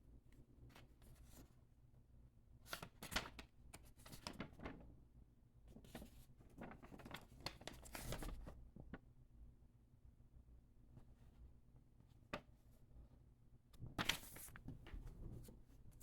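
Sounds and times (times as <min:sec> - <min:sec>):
paper and cardboard rustling: 0:13.9 - 0:15.6.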